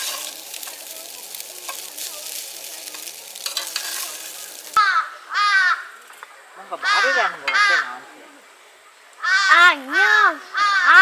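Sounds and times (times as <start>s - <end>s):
food sizzling in a pan: 0.0s - 4.8s
crow cawing: 4.8s - 6.0s, 6.8s - 8.0s, 9.2s - 11.0s.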